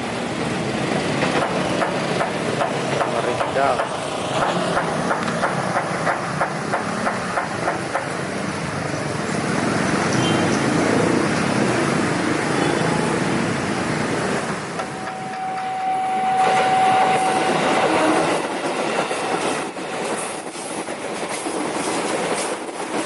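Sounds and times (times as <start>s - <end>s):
train rumbling past: 0.0s - 23.0s
train wheels clicking over rail joints: 1.0s - 8.8s, 17.4s - 23.0s.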